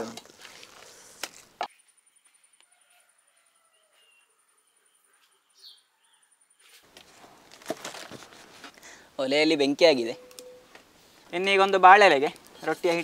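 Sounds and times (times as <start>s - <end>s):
faint bird chirps: 1.7s - 6.8s, 10.1s - 10.7s.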